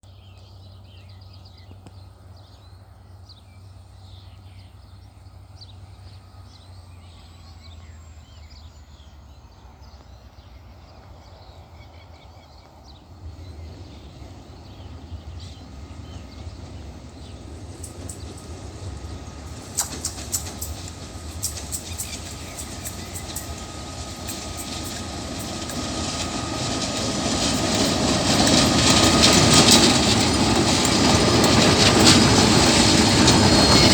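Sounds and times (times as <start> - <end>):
diesel train rumbling: 2.2 - 33.9
wheels clicking over rail joints: 15.5 - 33.9
faint bird chirps: 19.5 - 26.7.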